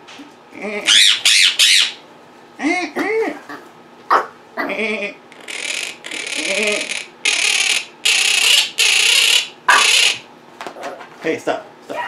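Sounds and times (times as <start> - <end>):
voice-like parrot calls: 0.6 - 2.0, 4.6 - 10.3
parrots squawking: 0.8 - 2.0, 4.1 - 10.3.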